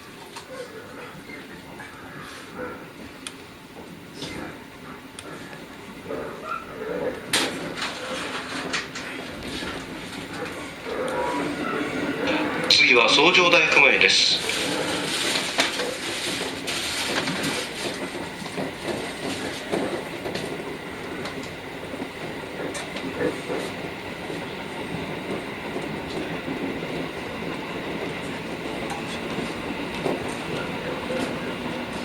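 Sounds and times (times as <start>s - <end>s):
train wheels rumbling on rail: 0.0s - 32.0s
clacks over rail joints: 7.1s - 32.0s.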